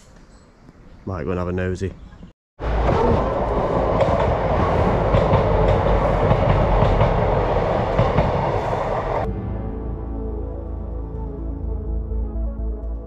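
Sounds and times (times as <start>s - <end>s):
train passing with rushing rumble: 2.6s - 10.9s
train wheels clicking: 2.7s - 9.3s
soft background music: 9.3s - 13.0s.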